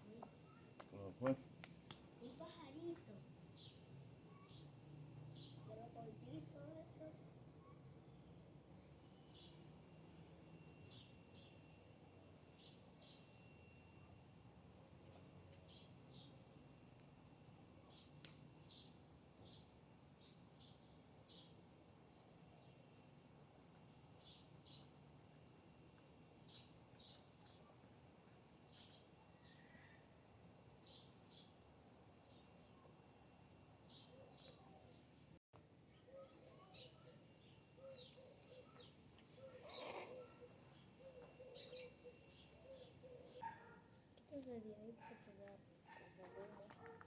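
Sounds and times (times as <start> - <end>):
small birds chirping: 2.2 - 7.0, 35.9 - 43.8.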